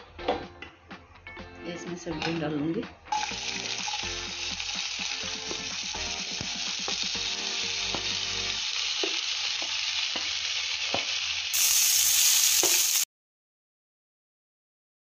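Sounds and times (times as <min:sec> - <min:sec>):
vegetables sizzling in hot oil: 0:03.1 - 0:13.1.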